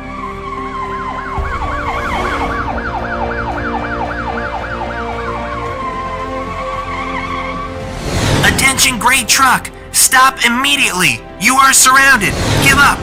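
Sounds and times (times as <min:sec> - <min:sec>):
police siren yelping: 0:00.0 - 0:07.9.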